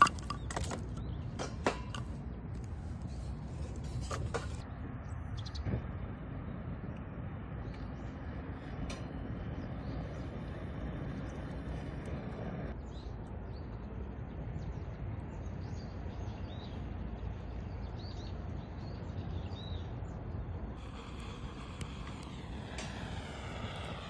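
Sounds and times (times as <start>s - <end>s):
small birds chirping: 5.0s - 5.8s
low rushing noise: 20.8s - 24.0s.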